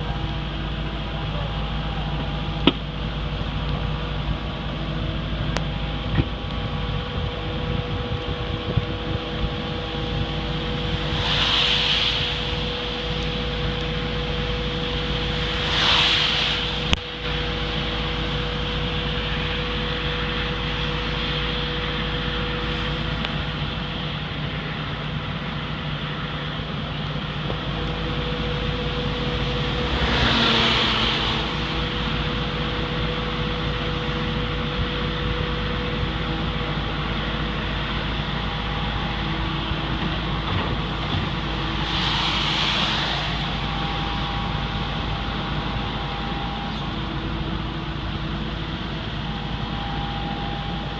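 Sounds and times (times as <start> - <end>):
excavator engine drone: 0.0 - 50.9
hydraulic hiss: 10.0 - 18.6, 39.2 - 46.4.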